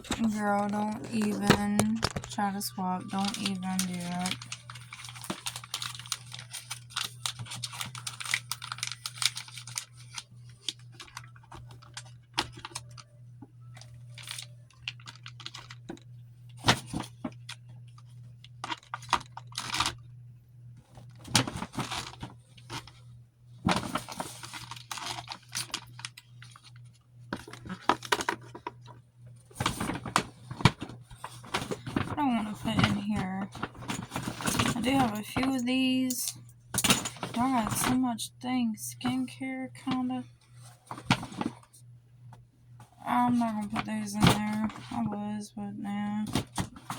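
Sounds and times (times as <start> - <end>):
packaging rustling: 0.0 - 15.9, 23.7 - 35.6
small items clicking and clattering: 0.0 - 20.0, 23.6 - 38.0
steady low hum: 0.0 - 46.9.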